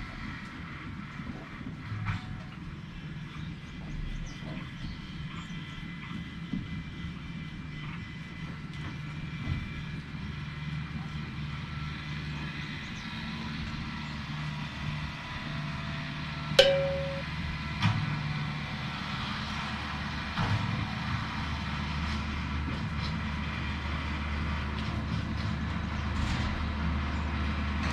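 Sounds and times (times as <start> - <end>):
metallic clank: 16.6 - 17.3.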